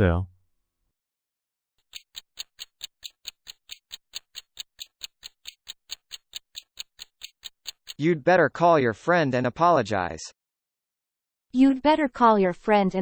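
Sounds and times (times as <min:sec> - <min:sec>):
clock ticking: 0:01.8 - 0:08.0.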